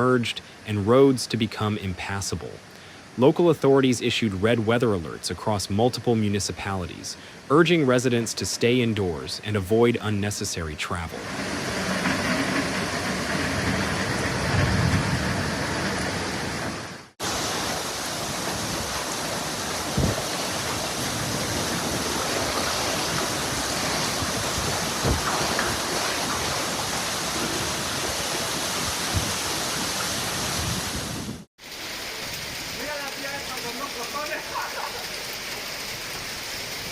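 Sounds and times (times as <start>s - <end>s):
floodwater rushing: 0.0s - 36.9s
heavy rain: 9.1s - 36.9s.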